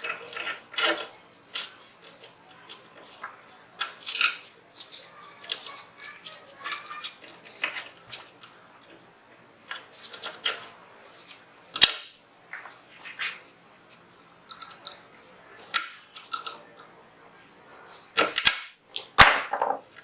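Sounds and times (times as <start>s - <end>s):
pistol parts clicking and scraping: 0.0s - 6.2s, 18.2s - 19.8s.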